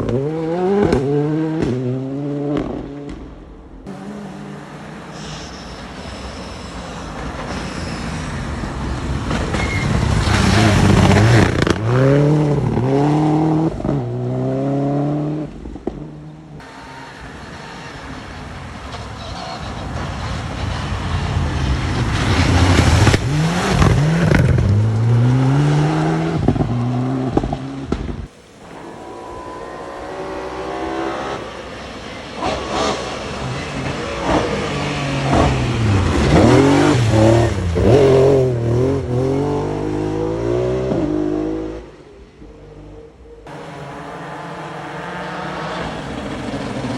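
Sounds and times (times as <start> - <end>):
rally cars passing at speed: 0.0 - 46.9.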